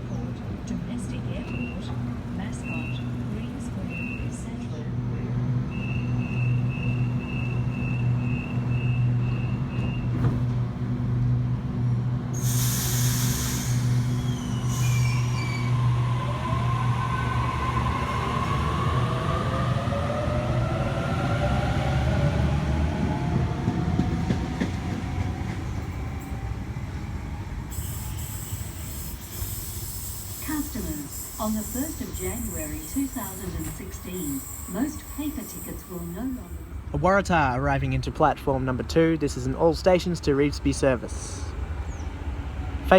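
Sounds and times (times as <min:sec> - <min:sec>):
door-closing beeps: 0:06.5 - 0:10.5
air hiss: 0:12.4 - 0:15.2.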